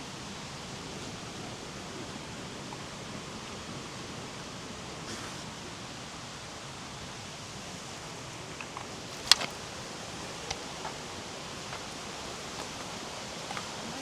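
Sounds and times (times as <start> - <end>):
flowing water rushing: 0.0 - 14.0
sharp clicks and crunches: 8.6 - 14.0.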